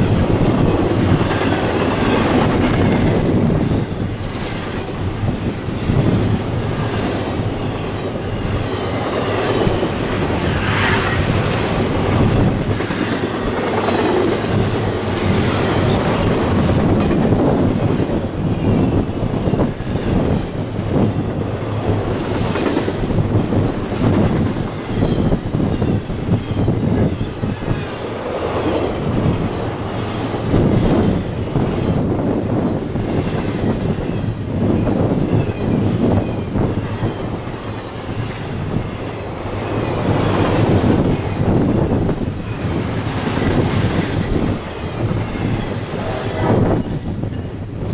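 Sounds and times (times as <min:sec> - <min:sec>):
train wheels clattering over rail joints: 0:00.0 - 0:47.5
wheel squeal: 0:24.8 - 0:28.0.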